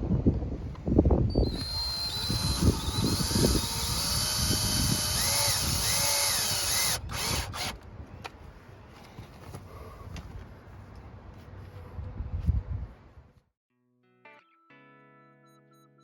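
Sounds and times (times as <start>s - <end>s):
power drill motor whine: 1.3s - 7.8s.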